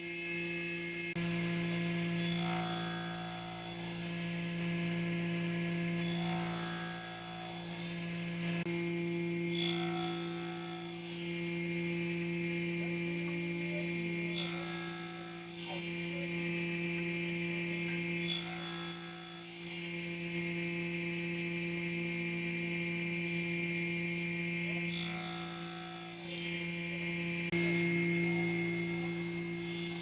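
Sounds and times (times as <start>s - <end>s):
electrical hum: 26.5s - 30.0s.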